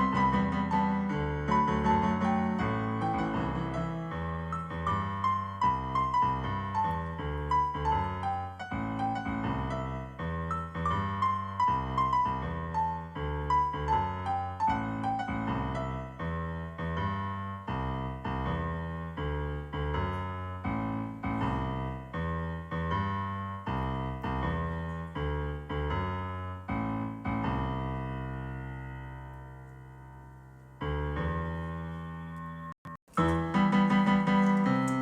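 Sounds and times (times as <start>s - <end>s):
gentle piano music: 0.0s - 35.0s.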